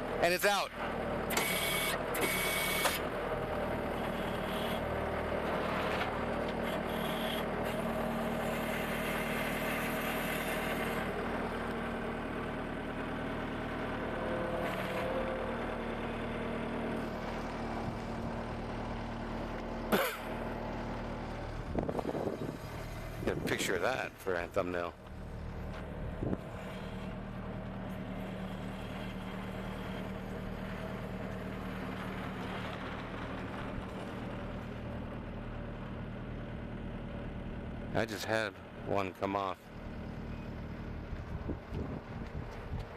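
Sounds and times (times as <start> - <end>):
skid steer engine running: 0.0 - 42.9
short mechanical sounds: 1.3 - 3.1, 14.6 - 15.2.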